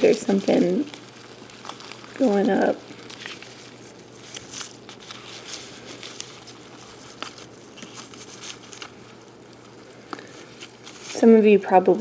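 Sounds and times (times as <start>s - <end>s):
scratching and rustling: 0.0s - 12.0s.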